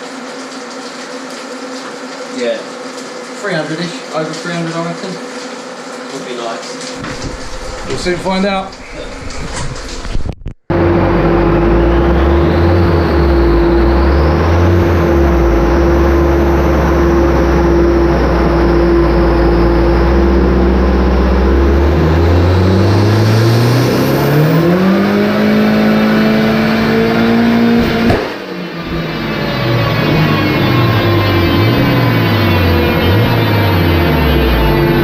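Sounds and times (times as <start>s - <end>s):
turbocharged car engine revving: 10.7s - 35.0s.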